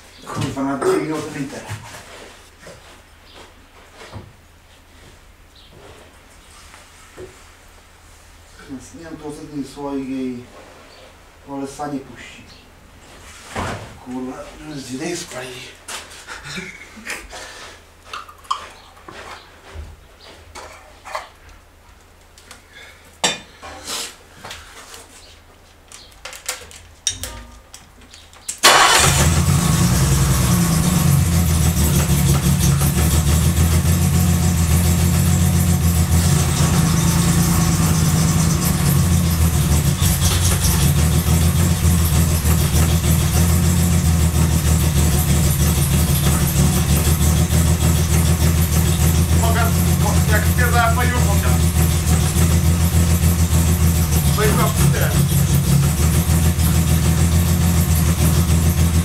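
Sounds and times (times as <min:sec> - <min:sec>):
car engine starting and running: 0:28.6 - 0:59.0.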